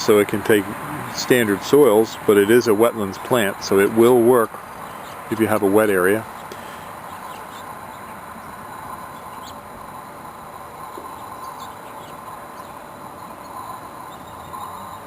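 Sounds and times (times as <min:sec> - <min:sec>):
bird chirps: 0:06.3 - 0:09.6, 0:10.9 - 0:15.0.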